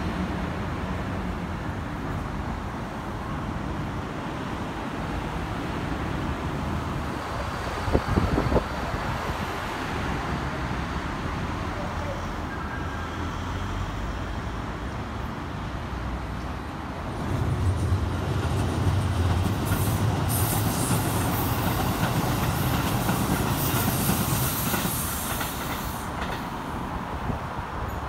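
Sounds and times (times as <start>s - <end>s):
train wheels rumbling on rails: 16.4s - 28.0s
high hiss: 19.6s - 22.0s, 22.6s - 26.3s.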